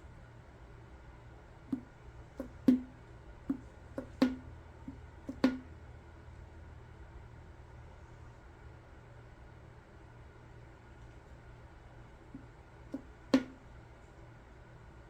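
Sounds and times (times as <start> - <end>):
light taps on hard object: 1.7 - 2.9, 3.5 - 5.7, 12.3 - 13.6.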